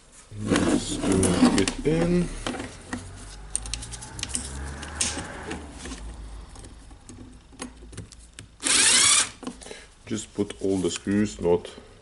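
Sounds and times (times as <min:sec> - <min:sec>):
small power tool burst: 0:08.6 - 0:09.4.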